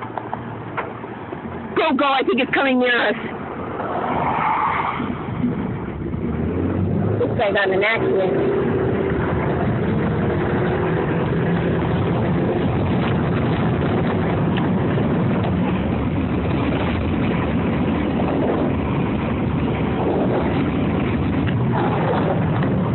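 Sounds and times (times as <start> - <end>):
strong wind rushing past car: 0.0 - 22.9
wind buffeting microphone: 5.0 - 22.9.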